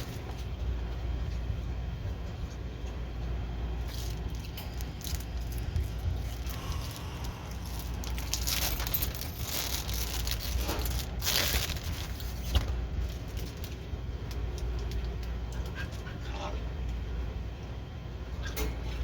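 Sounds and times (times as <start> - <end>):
steady low hum: 0.0 - 19.0
plastic packaging crinkling: 3.8 - 15.1.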